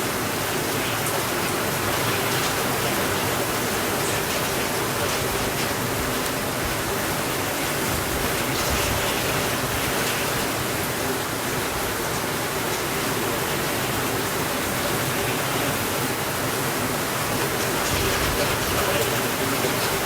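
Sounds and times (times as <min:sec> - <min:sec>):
steady rainfall: 0:00.0 - 0:20.0.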